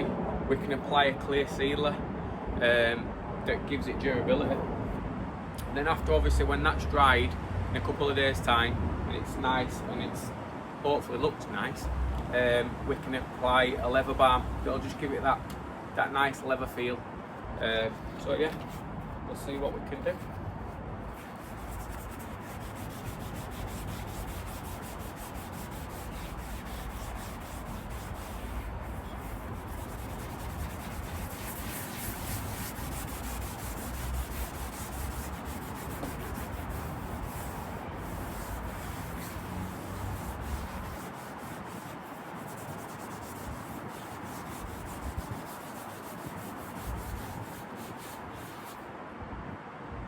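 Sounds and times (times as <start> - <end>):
pad rubbing on leather: 17.7 - 48.9.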